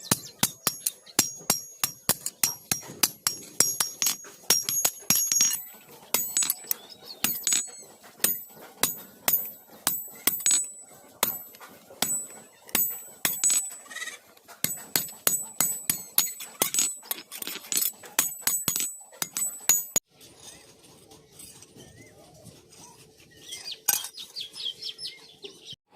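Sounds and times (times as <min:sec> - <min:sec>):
hammer striking iron on anvil: 0:00.0 - 0:13.8, 0:14.6 - 0:20.0.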